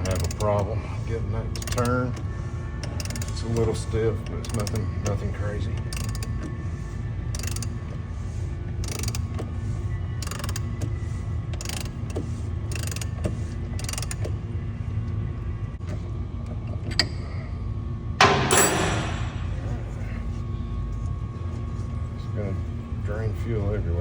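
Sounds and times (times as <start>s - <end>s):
ratchet clicking: 0.0s - 0.6s, 1.5s - 2.2s, 2.8s - 5.2s, 5.8s - 6.5s, 7.3s - 8.0s, 8.8s - 9.5s, 10.2s - 10.9s, 11.5s - 14.4s
steady low hum: 0.0s - 24.0s.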